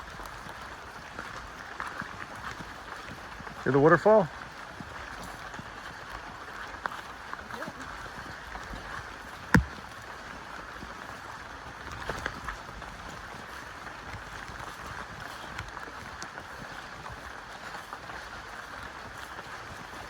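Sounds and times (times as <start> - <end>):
sharp knock: 9.6 - 9.8.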